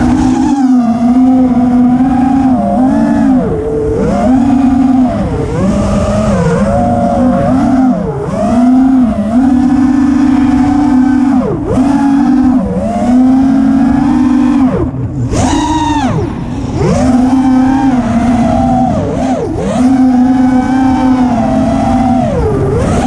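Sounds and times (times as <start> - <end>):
quadcopter motors whining: 0.0 - 23.0.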